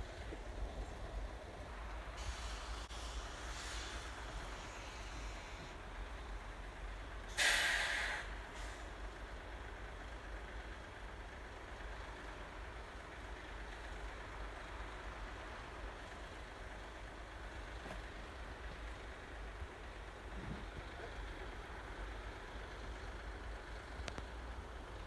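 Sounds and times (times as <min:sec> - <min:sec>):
air brakes hissing: 0:02.0 - 0:06.1, 0:07.2 - 0:09.1.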